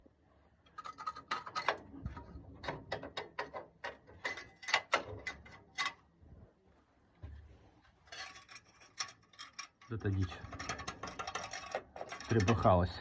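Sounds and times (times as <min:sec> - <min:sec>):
metallic knocking and clinking: 0:08.2 - 0:12.7.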